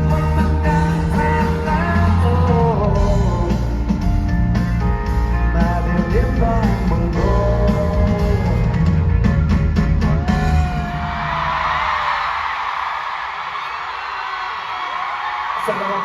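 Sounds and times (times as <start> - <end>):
person singing: 0.0 - 4.1, 5.3 - 9.0
live rock band playing: 0.0 - 11.2.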